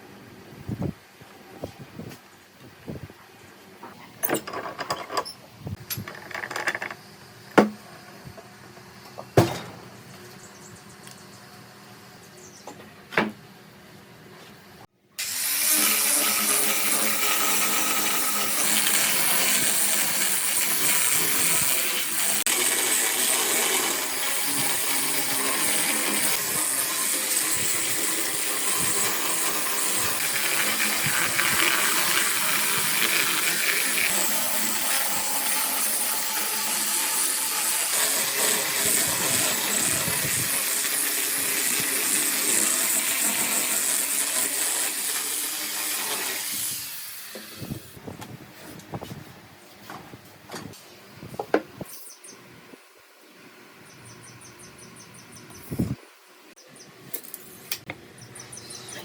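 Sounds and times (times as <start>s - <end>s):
power tool hissing: 15.2s - 48.0s.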